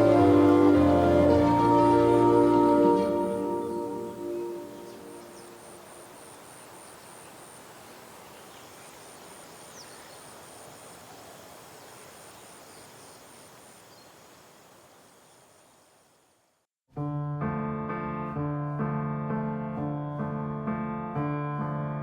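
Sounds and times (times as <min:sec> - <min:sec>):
insect chirping: 0:02.6 - 0:16.7.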